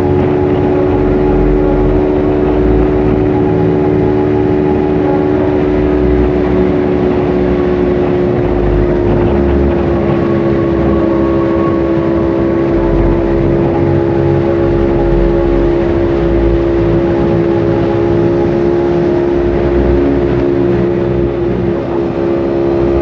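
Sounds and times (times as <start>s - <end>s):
motorcycle engine cruising: 0.0s - 23.0s
wind rumble: 0.0s - 23.0s.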